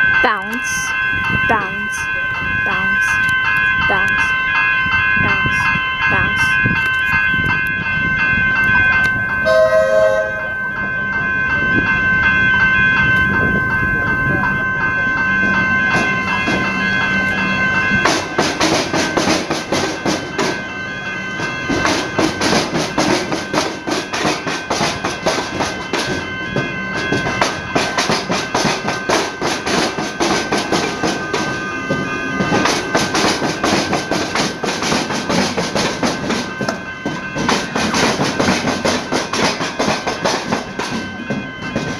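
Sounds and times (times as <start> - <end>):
electric train high whine: 0.0 - 41.9
train wheels clattering over crossing: 14.2 - 41.9.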